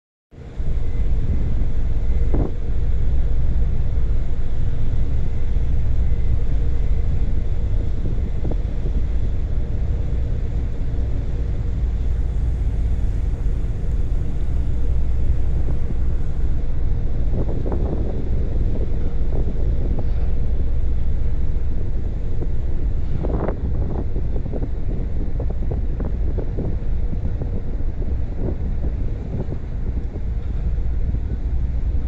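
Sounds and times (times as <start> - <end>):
faint steady tones: 0.4 - 23.0
wind buffeting microphone: 0.4 - 32.0.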